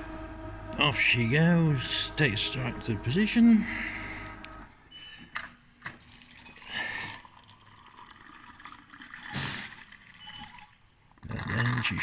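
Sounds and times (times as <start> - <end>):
coffee pouring into a mug: 6.0 - 12.0.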